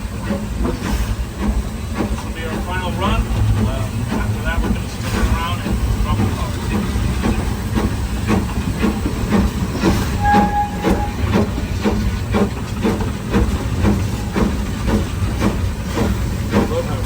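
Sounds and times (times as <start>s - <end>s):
exhaust chuffs: 0.0s - 17.0s
short high tone: 10.2s - 11.3s.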